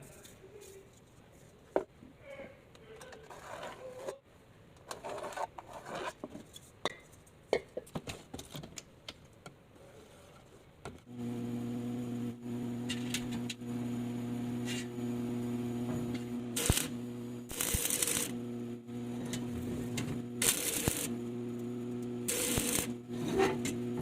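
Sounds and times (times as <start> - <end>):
electric motor hum: 11.1 - 24.0.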